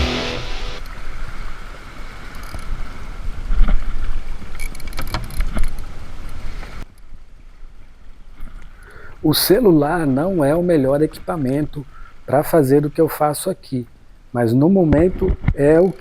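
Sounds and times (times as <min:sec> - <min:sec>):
wind and water rushing: 0:00.0 - 0:06.9.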